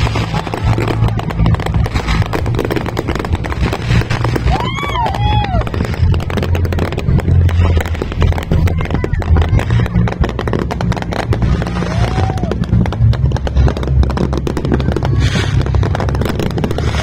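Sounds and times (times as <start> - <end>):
firework whistle: 0.0 - 6.6, 11.4 - 12.9
deep booms rumbling: 0.0 - 17.0
fireworks crackling and popping: 0.0 - 17.0.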